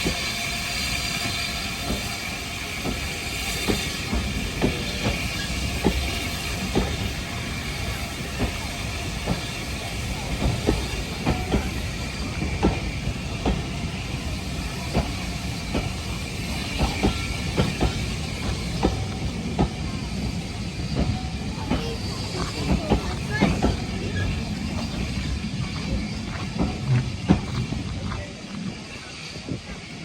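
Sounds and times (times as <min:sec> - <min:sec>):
train rumbling on track: 0:00.0 - 0:30.0.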